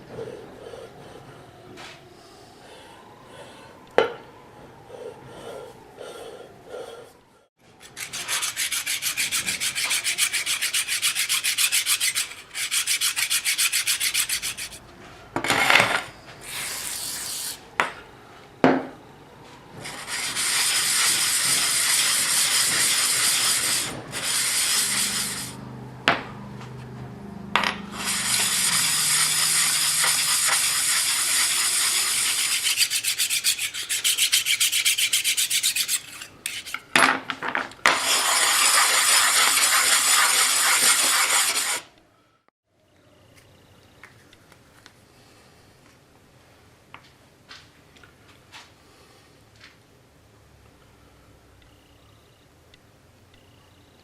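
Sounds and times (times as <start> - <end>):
rapid scrubbing on a part: 7.8 - 14.8, 19.9 - 25.6, 27.9 - 36.8, 38.0 - 41.9.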